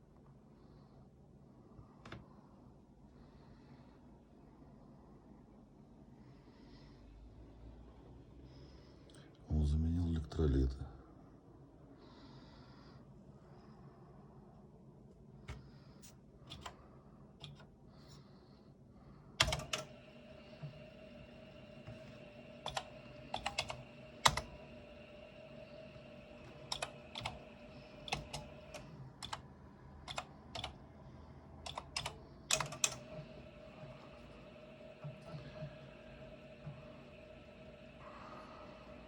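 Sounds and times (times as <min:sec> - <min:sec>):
steady hum: 0:12.0 - 0:39.0.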